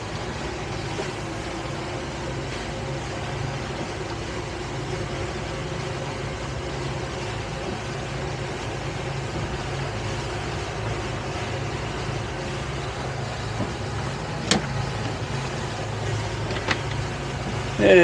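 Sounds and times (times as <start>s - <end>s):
boat engine humming: 0.0s - 18.0s
steady rushing noise: 0.0s - 18.0s.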